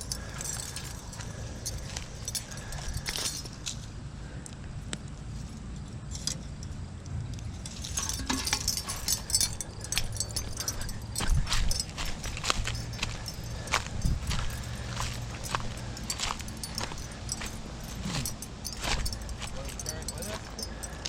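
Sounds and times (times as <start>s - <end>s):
steady low rumble: 0.0s - 21.0s
small hard objects clinking: 7.4s - 21.0s.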